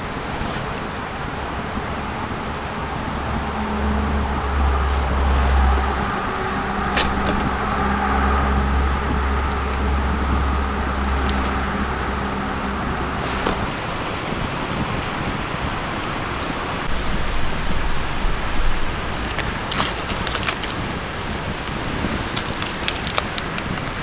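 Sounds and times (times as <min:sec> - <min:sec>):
steady hiss: 0:00.0 - 0:14.9
low engine-like hum: 0:00.0 - 0:24.0.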